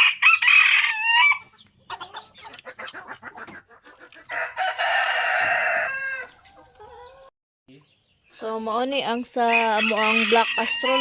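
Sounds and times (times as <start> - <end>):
rooster crowing: 0.0 - 1.4, 4.3 - 6.4, 9.7 - 11.0
chickens clucking: 0.9 - 7.9.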